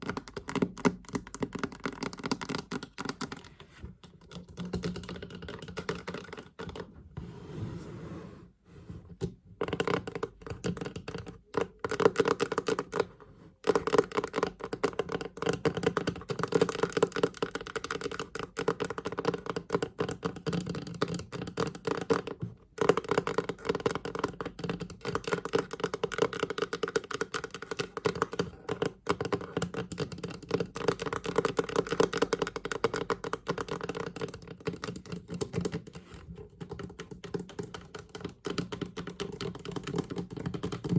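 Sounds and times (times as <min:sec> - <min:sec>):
fingers tapping on chest: 0:09.6 - 0:40.9.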